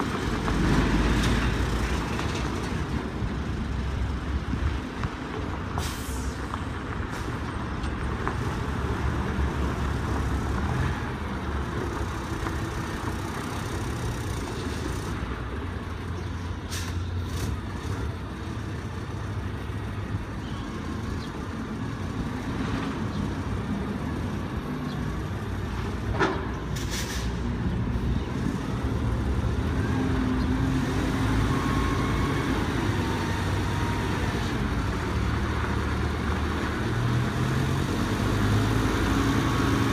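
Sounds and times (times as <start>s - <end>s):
short sharp hisses: 26.8s - 27.4s.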